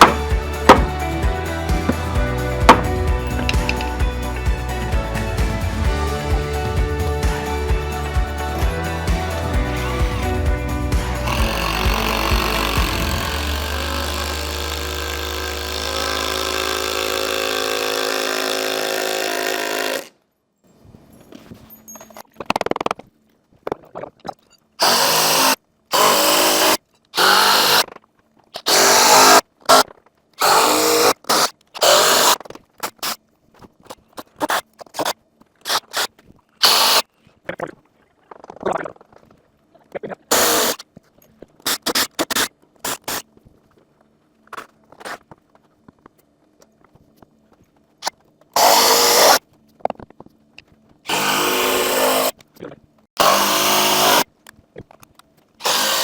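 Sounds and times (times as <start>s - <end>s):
background music: 0.0s - 16.1s
power tool short bursts: 11.2s - 20.1s, 24.8s - 27.8s, 28.6s - 29.8s, 35.7s - 37.0s, 55.6s - 56.0s.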